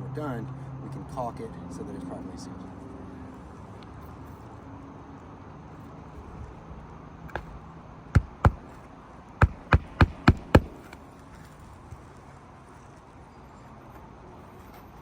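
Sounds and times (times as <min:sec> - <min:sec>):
hammer striking roofing nail: 0:07.3 - 0:07.6, 0:08.2 - 0:08.8, 0:09.4 - 0:11.0.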